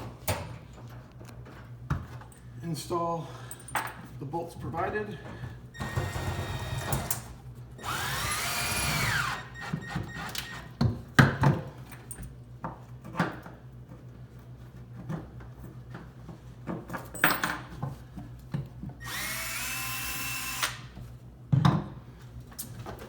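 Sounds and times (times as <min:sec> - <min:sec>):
power drill whine: 0:05.8 - 0:07.2, 0:07.8 - 0:10.7, 0:19.0 - 0:20.9.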